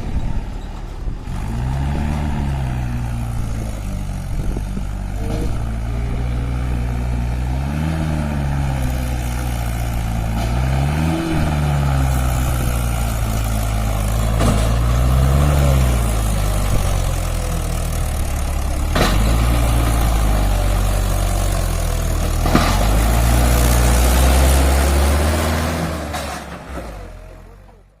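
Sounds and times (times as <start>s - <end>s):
tractor diesel engine revving: 0.0s - 28.0s.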